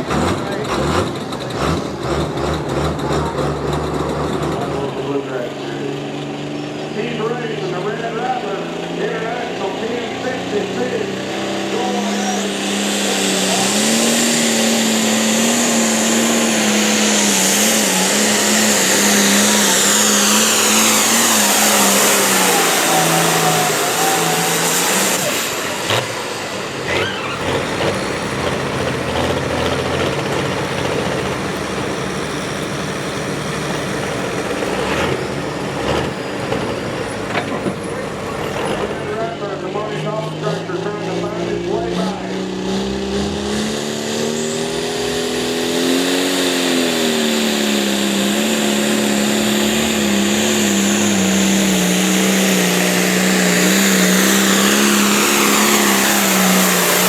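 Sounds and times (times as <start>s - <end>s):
vehicle engine at high revs: 0.0s - 57.0s
loud high hiss: 12.5s - 26.5s.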